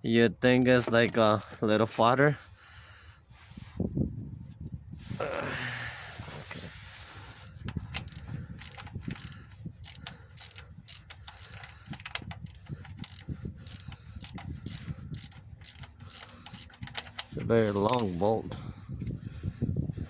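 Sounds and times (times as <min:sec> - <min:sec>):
socket ratchet clicking: 0:07.0 - 0:18.3.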